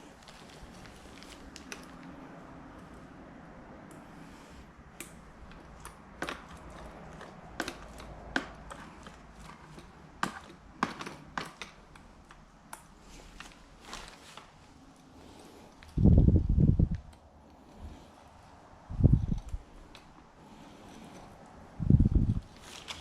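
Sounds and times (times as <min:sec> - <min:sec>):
objects clicking and knocking: 0:05.0 - 0:14.0.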